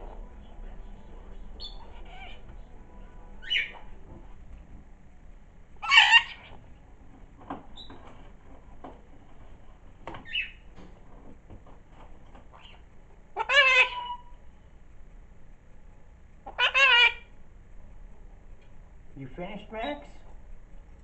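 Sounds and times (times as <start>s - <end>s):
cockatiel short high calls: 3.4s - 3.8s, 5.8s - 6.6s, 13.4s - 14.3s.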